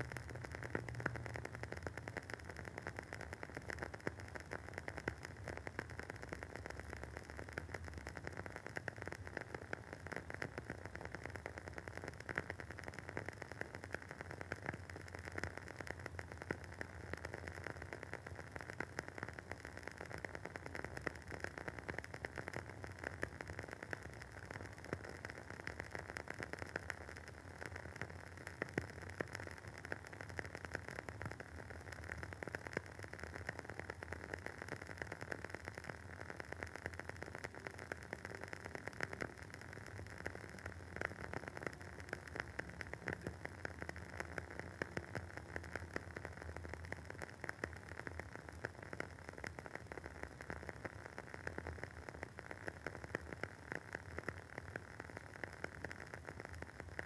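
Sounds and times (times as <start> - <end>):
candle wick crackling: 20.4 - 57.0.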